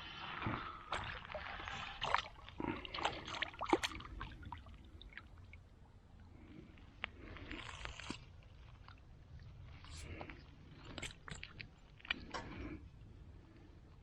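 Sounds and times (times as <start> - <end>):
water splashing and dripping: 0.9 - 5.5.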